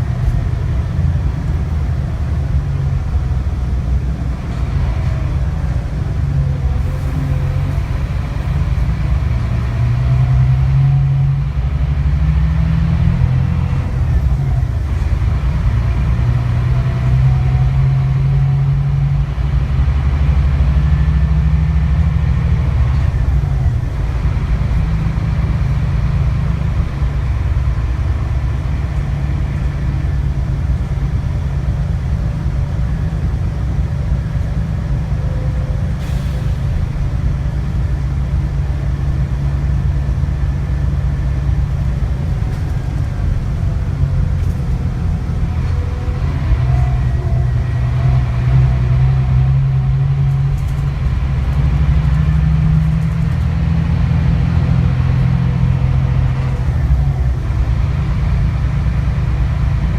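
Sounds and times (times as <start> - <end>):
bus diesel engine rumbling: 0.0 - 59.9.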